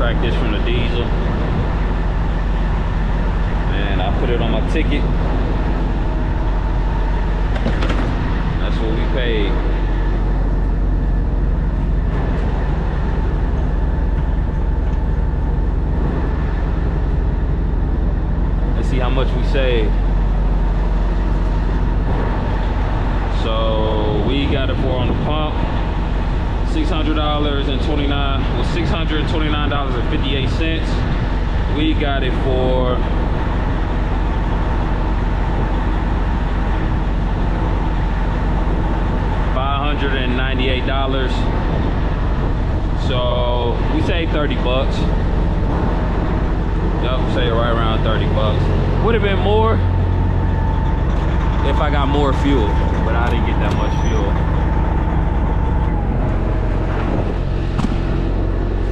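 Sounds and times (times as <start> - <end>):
diesel engine idling: 0.0 - 58.9
faint constant hum: 0.0 - 58.9.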